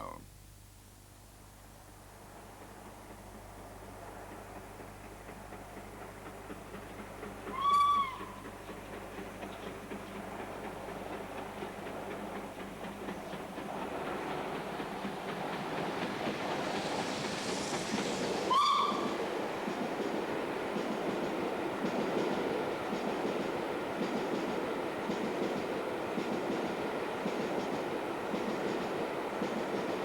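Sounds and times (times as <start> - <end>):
train running noise: 1.1 - 30.0
steam locomotive whistle blasts: 7.5 - 8.4, 18.5 - 19.2.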